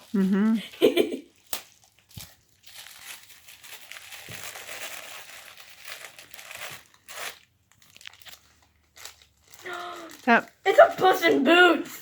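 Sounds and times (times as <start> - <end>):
gift wrapping crinkling: 0.0 - 12.0.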